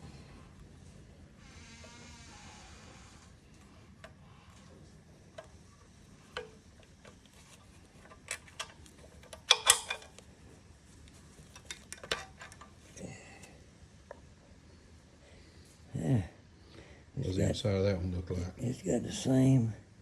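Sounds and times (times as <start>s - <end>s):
metal on metal clatter: 6.2s - 10.2s, 11.4s - 12.8s
hand tools clinking on engine parts: 8.0s - 10.2s.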